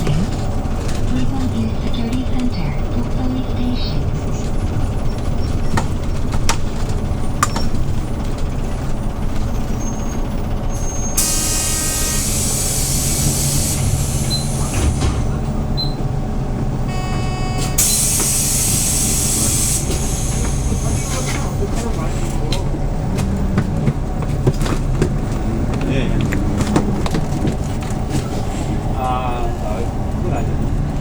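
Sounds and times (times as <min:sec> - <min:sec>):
bus engine idling: 0:00.0 - 0:31.0
compressed air hiss: 0:11.2 - 0:14.9, 0:17.8 - 0:21.4.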